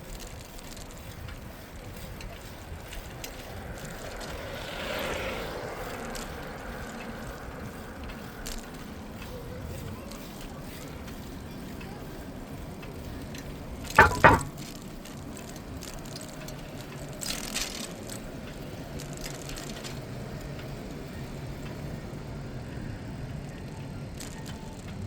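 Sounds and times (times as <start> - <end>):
bicycle tyre and street noise: 0.0 - 25.0
sharp knocks: 14.0 - 14.6.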